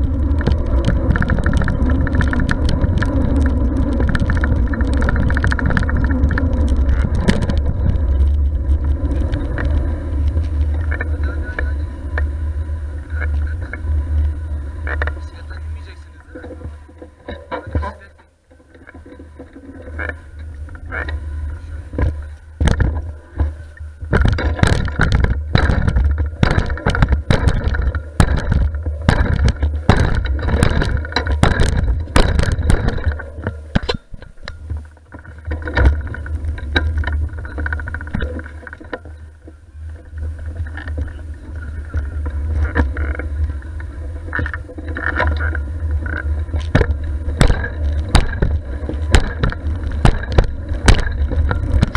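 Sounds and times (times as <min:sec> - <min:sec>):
wind rumble on microphone: 0:00.0 - 0:18.1, 0:18.8 - 0:51.9
bike rattles and knocks: 0:00.0 - 0:51.9.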